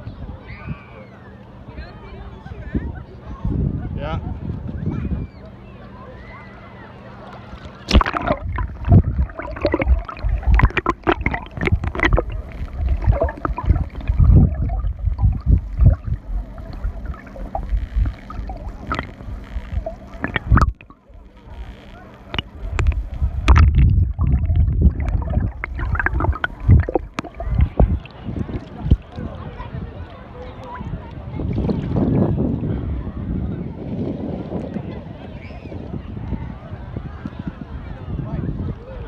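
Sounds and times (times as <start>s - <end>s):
sea water splashing and gurgling: 7.6s - 29.7s.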